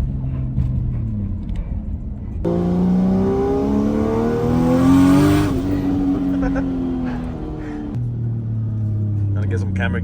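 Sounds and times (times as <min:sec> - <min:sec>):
car engine accelerating: 0:02.4 - 0:09.6.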